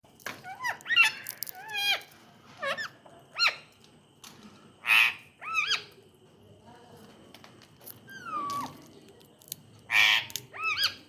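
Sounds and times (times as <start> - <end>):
parrot squeaky calls: 0.4 - 2.0, 9.9 - 11.0.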